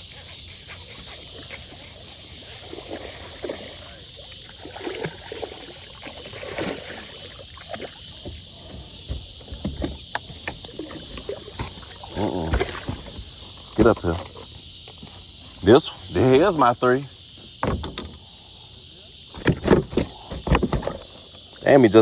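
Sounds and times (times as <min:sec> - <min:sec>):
light water sounds: 0:00.0 - 0:16.8
insects chorus: 0:00.0 - 0:22.0
knocks and rustles of gear: 0:19.4 - 0:21.2.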